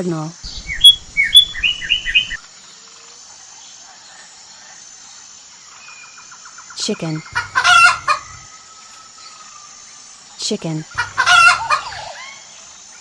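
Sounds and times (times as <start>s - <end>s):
bird singing whistled notes: 0.4s - 2.4s.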